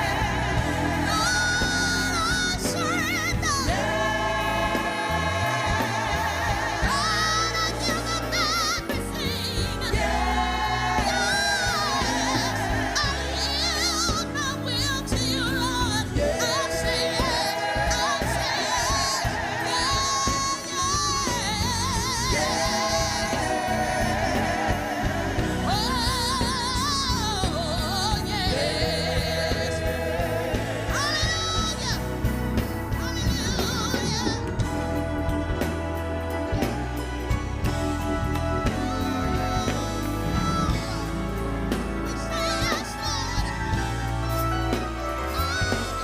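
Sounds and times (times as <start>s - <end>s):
band accompaniment with bass: 0.0s - 46.0s
person singing gospel: 0.0s - 46.0s.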